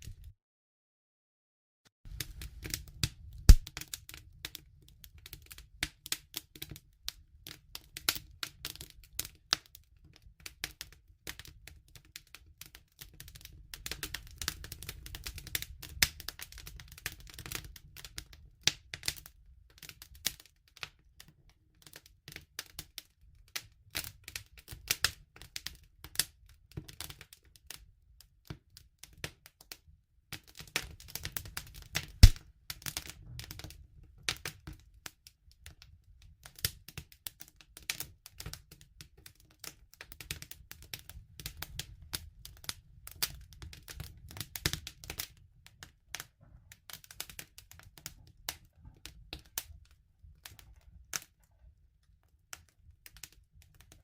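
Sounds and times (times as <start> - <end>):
campfire crackling: 2.1 - 4.6, 30.7 - 33.8.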